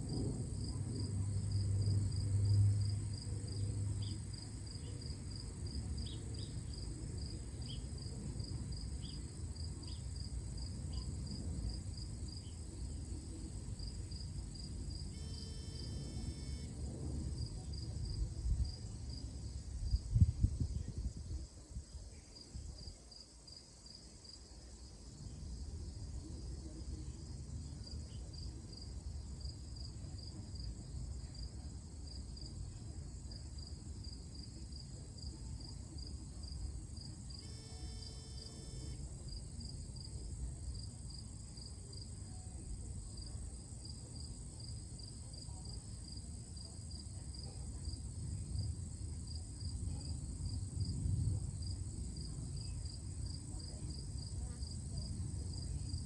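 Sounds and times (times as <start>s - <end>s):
crickets chirping: 0.0s - 56.0s
high insect whine: 13.5s - 16.9s, 36.4s - 40.4s.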